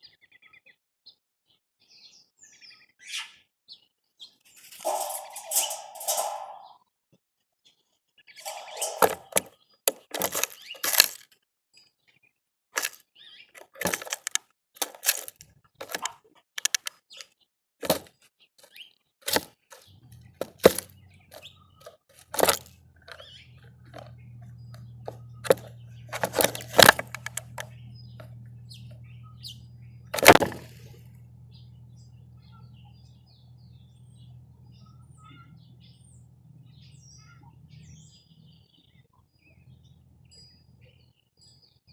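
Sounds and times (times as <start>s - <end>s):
faint bird chirp: 1.9s - 6.8s, 7.7s - 10.9s, 19.7s - 30.2s, 30.8s - 41.9s
birds pecking and cracking seed: 4.6s - 6.7s, 8.4s - 11.4s, 12.8s - 31.6s
low steady hum: 22.4s - 38.2s.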